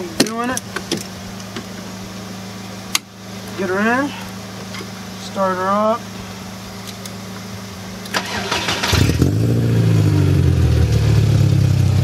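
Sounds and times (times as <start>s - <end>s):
car engine starting and revving: 8.0s - 12.0s.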